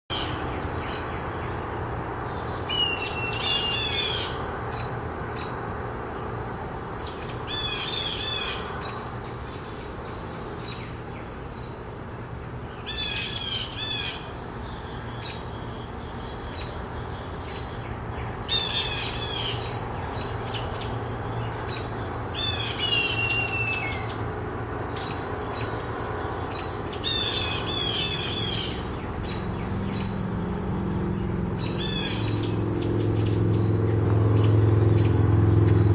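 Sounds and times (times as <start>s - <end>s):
birds harsh squawking: 17.5s - 33.4s.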